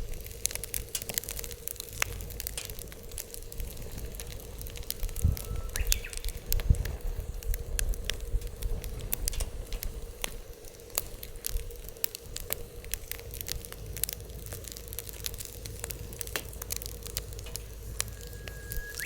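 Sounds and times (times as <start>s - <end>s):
wood fire crackling: 0.0s - 19.0s
wind on microphone: 3.5s - 10.5s, 17.2s - 19.0s.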